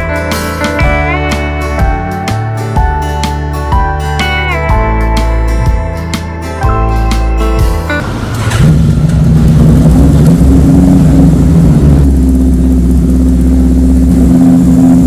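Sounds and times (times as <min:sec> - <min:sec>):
motorcycle engine idling: 0:08.6 - 0:15.0.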